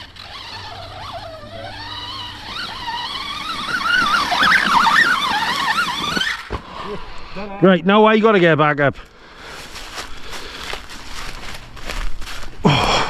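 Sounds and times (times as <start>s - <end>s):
electric motor whining: 0.0s - 7.3s.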